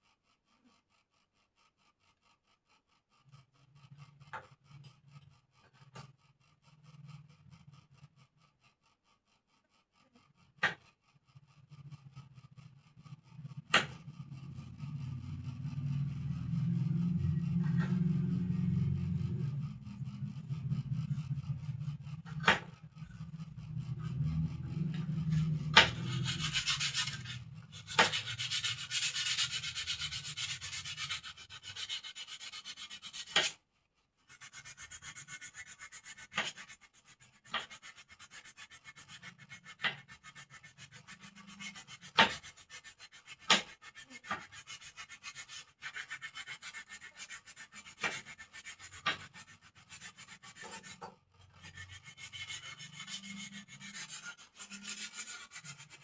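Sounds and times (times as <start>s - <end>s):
sandpaper rubbing wood: 19.4s - 33.6s, 34.3s - 56.0s.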